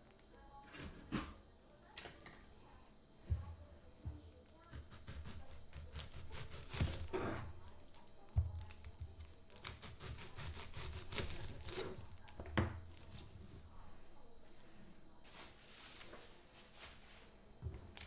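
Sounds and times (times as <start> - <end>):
small clicks and crackly rustles: 0.0 - 0.6, 7.5 - 13.8, 14.5 - 18.0.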